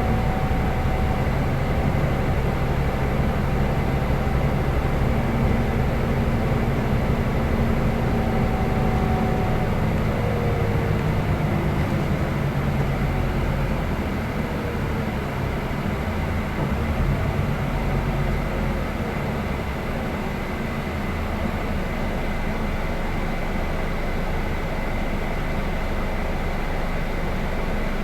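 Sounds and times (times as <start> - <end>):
faint drivetrain whine: 0.0 - 18.5
coach engine rumble: 0.0 - 19.2.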